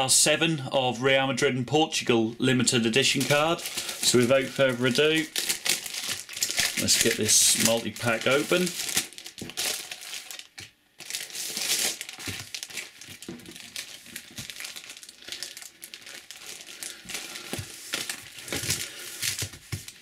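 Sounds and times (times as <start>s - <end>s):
packaging crinkling and crackling: 2.9s - 20.0s.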